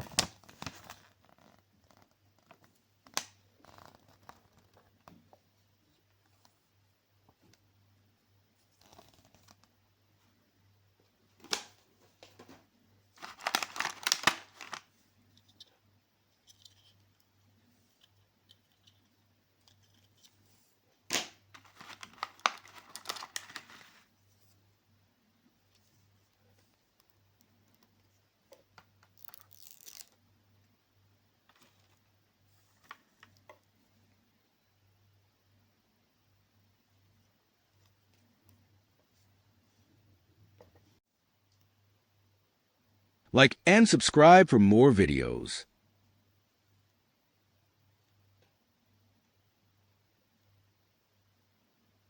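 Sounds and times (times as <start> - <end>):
packaging crackling and tearing: 13.2 - 14.8, 21.6 - 24.0, 29.2 - 30.2
packaging crinkling: 13.2 - 14.9, 21.6 - 24.0
packaging rustling: 13.2 - 14.9, 21.6 - 24.1.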